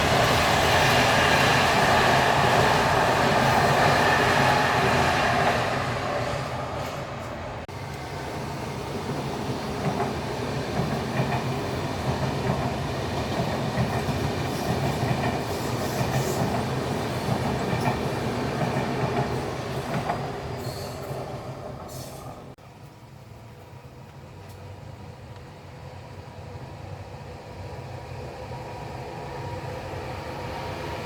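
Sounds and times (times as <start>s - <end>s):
train wheels clattering on track: 0.0s - 22.5s.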